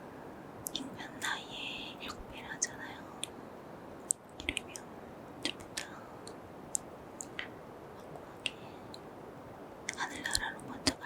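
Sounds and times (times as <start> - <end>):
faint steady hiss: 0.0 - 11.0
kisses and wet lip smacks: 5.4 - 5.9.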